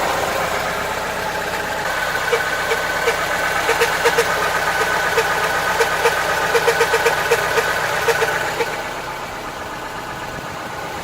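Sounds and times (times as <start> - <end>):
car engine idling: 0.0 - 11.0
squeaky chirps and clicks: 2.1 - 8.8.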